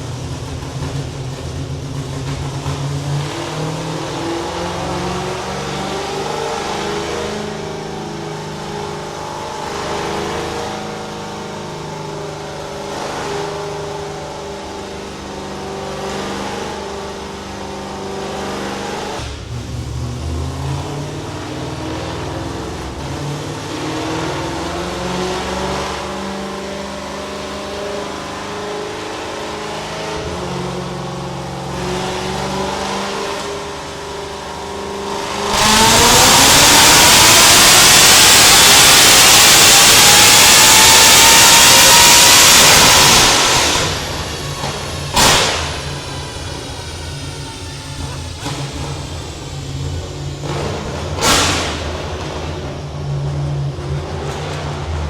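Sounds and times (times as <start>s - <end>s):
race car engine on dyno: 0.0s - 55.0s.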